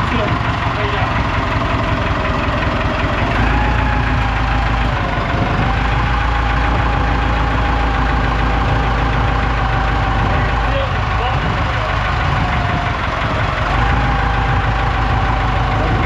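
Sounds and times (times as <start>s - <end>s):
engine idling: 0.0s - 16.0s
mid-pitched whine: 0.0s - 16.0s.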